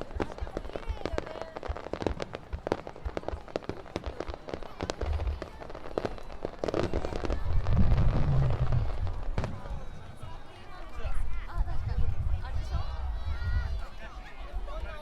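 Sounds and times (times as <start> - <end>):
fireworks crackling pops: 0.0 - 10.4.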